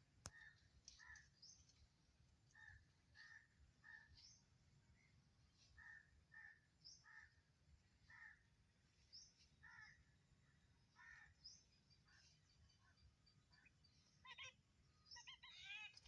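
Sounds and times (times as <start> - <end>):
bird harsh calls: 10.9 - 16.0.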